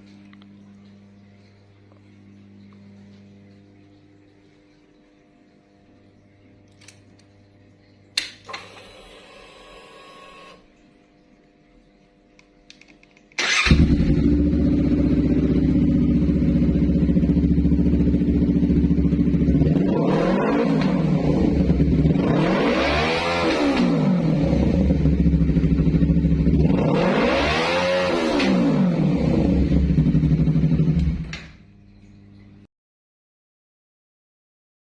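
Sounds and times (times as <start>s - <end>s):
motorcycle engine idling and revving: 13.5s - 31.6s.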